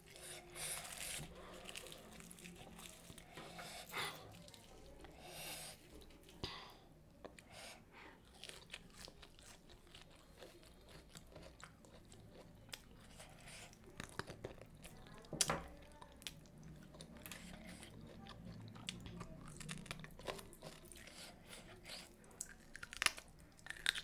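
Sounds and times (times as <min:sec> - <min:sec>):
wet chewing mouth sounds: 0:07.2 - 0:24.0
crisp crunching bites: 0:22.4 - 0:24.0.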